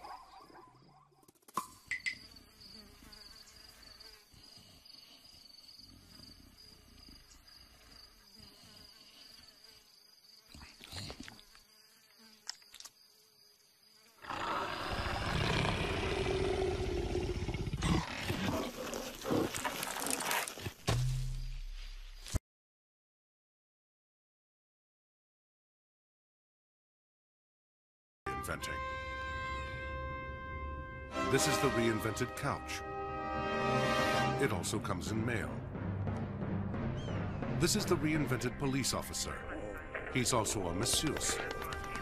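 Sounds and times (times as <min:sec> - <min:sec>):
insects buzzing: 0:01.8 - 0:20.8
cartoon leopard growling: 0:14.2 - 0:20.0.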